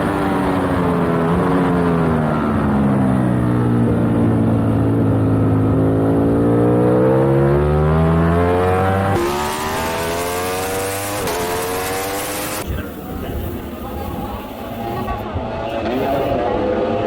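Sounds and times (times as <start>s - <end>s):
motorcycle engine accelerating: 0.0s - 17.0s
gear upshifts: 7.7s - 16.5s.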